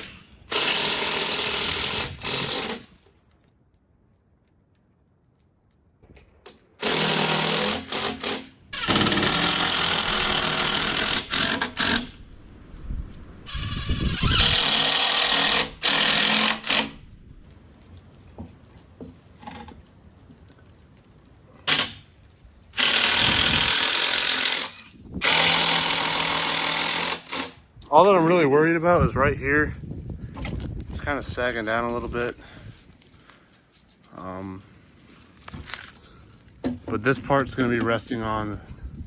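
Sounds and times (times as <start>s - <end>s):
impact driver hammering screws: 0.0s - 2.9s, 6.8s - 12.2s, 14.1s - 17.0s, 22.8s - 27.6s.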